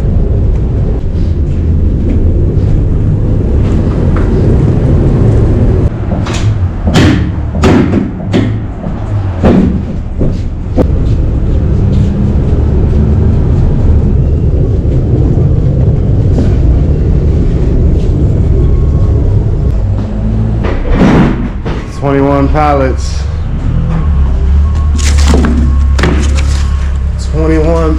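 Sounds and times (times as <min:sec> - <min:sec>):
bangs and thuds: 0:06.0 - 0:10.9, 0:20.6 - 0:22.0.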